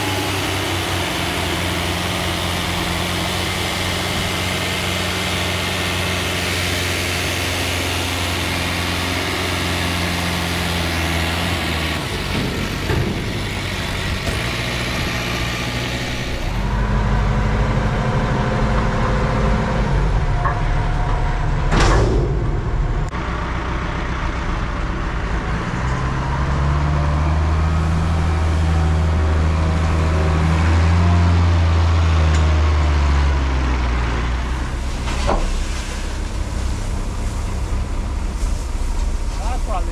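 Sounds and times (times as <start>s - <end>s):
tractor engine revving under load: 0.0s - 24.5s.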